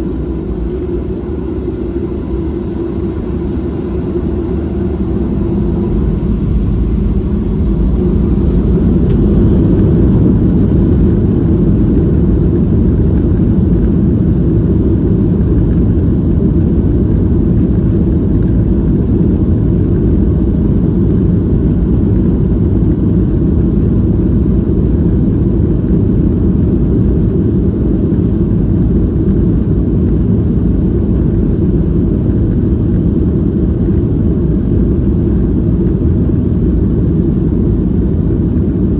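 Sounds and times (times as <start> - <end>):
jet engines at takeoff power: 0.0 - 38.9.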